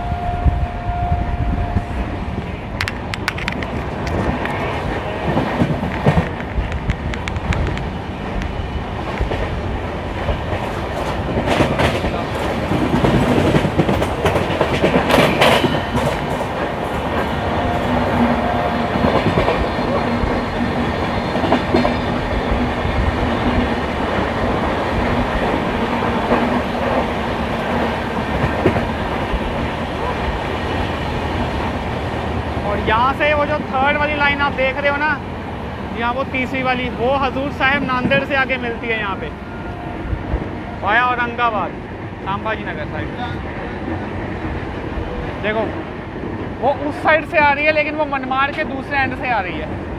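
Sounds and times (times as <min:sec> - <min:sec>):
train rumbling on track: 0:00.0 - 0:49.9.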